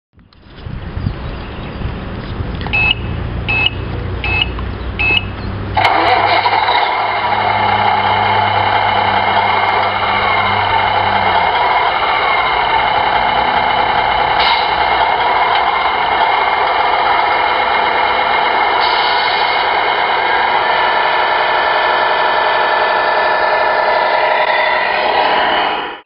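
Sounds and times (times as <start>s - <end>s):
short electronic beeps: 2.7s - 5.4s
simulated truck engine idling: 2.8s - 25.9s
low hum: 5.8s - 26.0s.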